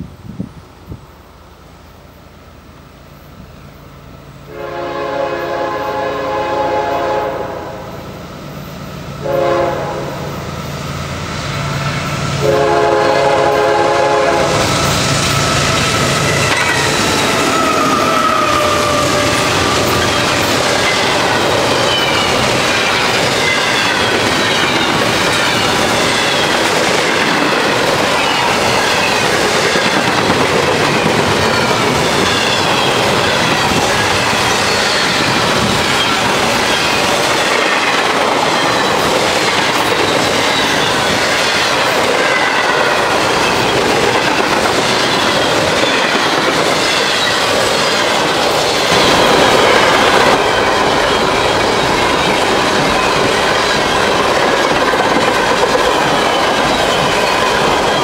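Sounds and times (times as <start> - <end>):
locomotive air horn blasts: 4.5 - 8.0, 9.2 - 10.4, 12.4 - 15.0
wheels clattering and squealing: 14.7 - 58.0.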